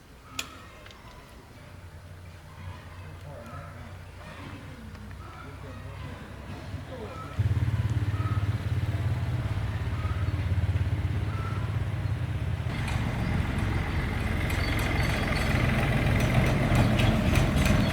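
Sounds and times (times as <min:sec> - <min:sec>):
engine running with low pulsing: 0:07.4 - 0:17.9.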